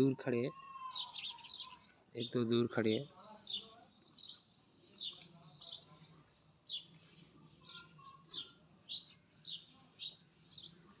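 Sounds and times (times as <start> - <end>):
bird chirping: 0.6 - 11.0.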